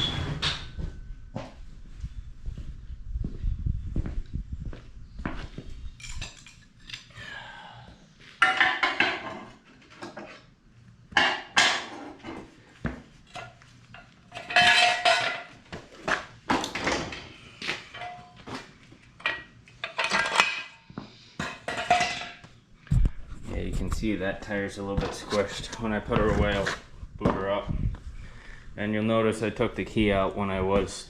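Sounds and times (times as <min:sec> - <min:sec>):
metal tools clanking: 0:06.0 - 0:07.1, 0:13.3 - 0:15.5, 0:17.9 - 0:18.4, 0:19.2 - 0:20.8.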